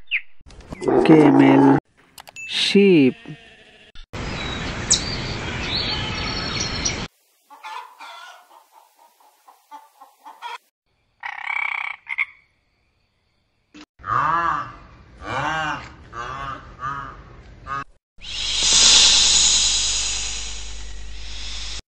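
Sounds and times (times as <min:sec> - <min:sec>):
short croak-like calls: 0:11.2 - 0:12.5.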